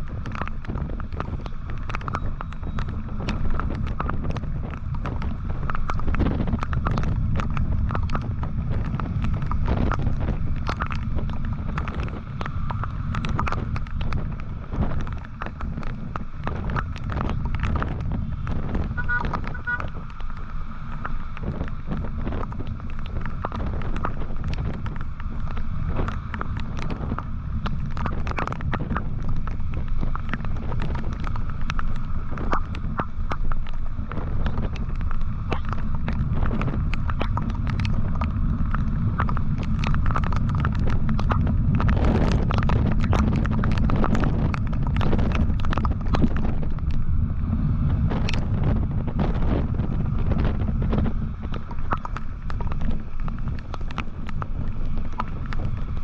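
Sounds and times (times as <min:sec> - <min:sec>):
sharp clicks and taps: 0:00.0 - 0:47.0, 0:50.2 - 0:55.7
motorcycle engine and road noise: 0:00.0 - 0:56.0
wind buffeting microphone: 0:00.0 - 0:56.0.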